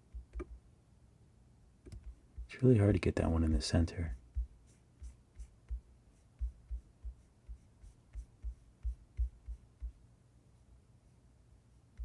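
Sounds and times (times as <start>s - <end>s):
faint steady hum: 0.0s - 12.0s
light clicking and tapping: 0.1s - 0.6s, 1.8s - 2.6s.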